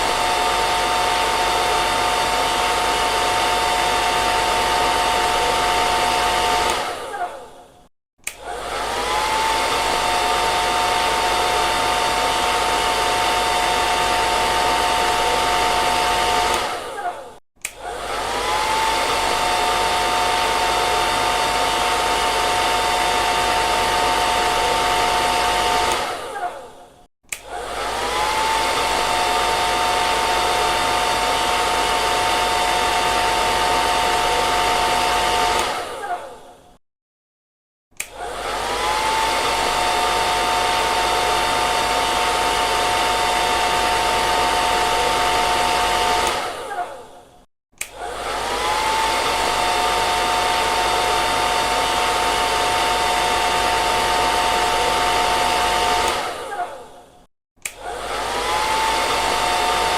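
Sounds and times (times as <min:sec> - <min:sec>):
hair dryer blowing: 0:00.0 - 0:36.8, 0:38.0 - 0:59.9.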